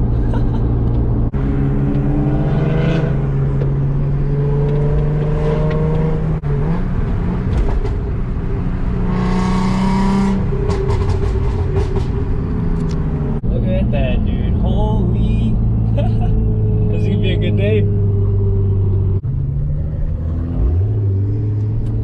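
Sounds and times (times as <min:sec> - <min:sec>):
car engine accelerating hard: 0:01.2 - 0:08.0, 0:15.6 - 0:22.0.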